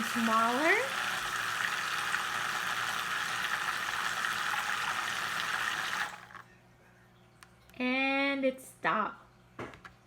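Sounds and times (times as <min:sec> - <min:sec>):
vortex mixer whirring: 0:00.0 - 0:06.4.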